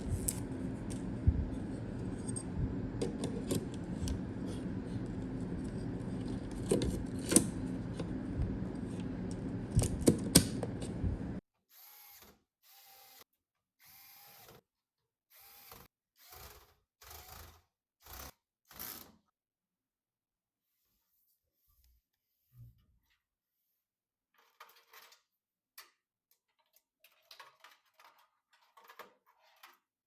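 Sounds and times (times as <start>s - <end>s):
clicks and knocks: 0.0s - 11.4s
small motor running: 15.4s - 18.3s.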